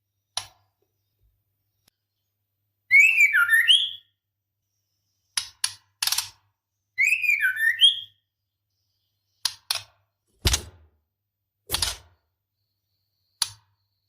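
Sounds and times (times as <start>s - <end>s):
bird whistled calls: 2.9s - 4.1s, 7.0s - 8.2s.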